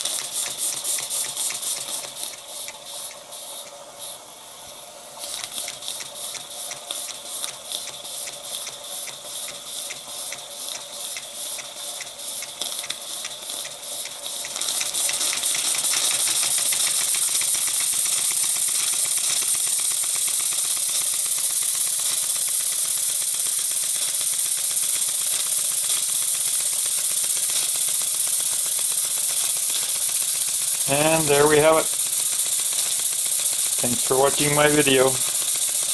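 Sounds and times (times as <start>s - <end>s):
steam hiss: 0.0s - 35.9s.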